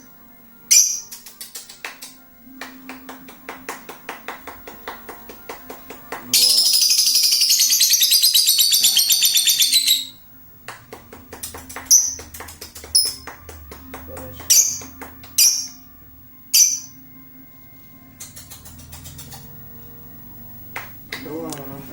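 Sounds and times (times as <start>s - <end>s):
lovebird shrill calls: 0.7s - 1.3s, 6.4s - 10.2s, 15.4s - 15.8s, 16.6s - 17.0s
lovebird chattering trill: 0.7s - 1.8s, 6.4s - 10.2s, 11.9s - 13.2s, 14.5s - 15.8s, 16.6s - 17.0s, 18.2s - 19.5s.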